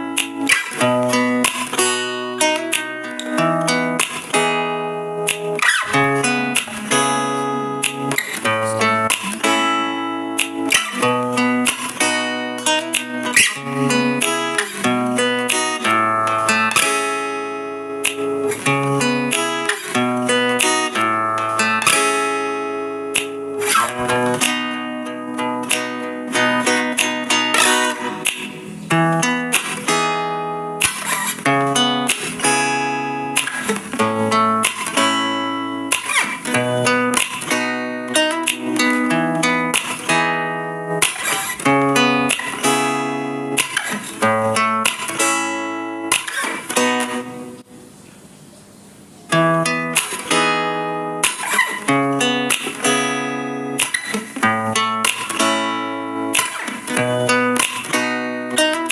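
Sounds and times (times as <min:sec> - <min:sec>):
acoustic guitar music: 0:00.0 - 0:58.9.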